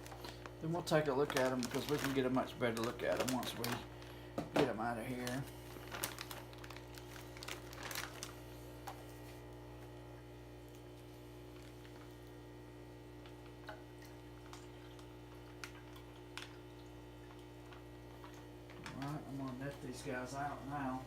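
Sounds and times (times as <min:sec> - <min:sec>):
plastic bag crinkling: 0:00.0 - 0:09.2, 0:10.7 - 0:12.3, 0:18.2 - 0:20.0
low electrical hum: 0:00.0 - 0:21.0.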